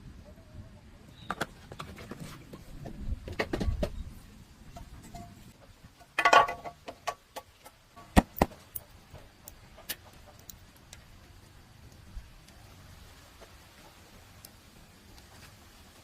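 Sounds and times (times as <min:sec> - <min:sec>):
tools and metal parts knocking: 0:06.0 - 0:10.5.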